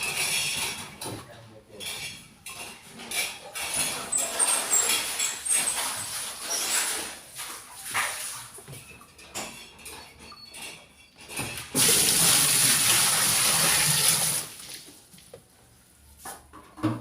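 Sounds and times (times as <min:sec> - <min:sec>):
water running into washing machine: 0:03.4 - 0:09.4, 0:11.6 - 0:15.1.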